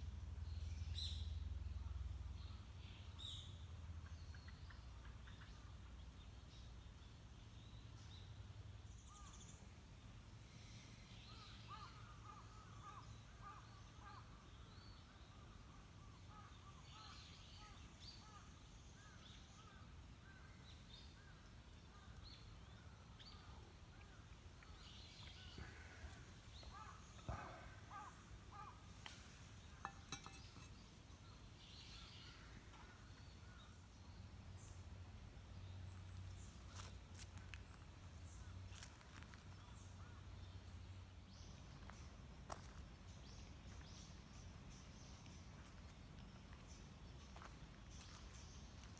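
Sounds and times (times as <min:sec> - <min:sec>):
faint birds calling: 0:10.5 - 0:34.0.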